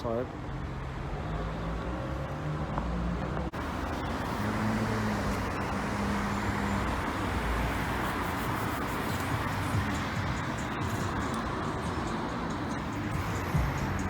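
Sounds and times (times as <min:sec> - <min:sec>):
vehicle engine running: 0:03.3 - 0:14.0.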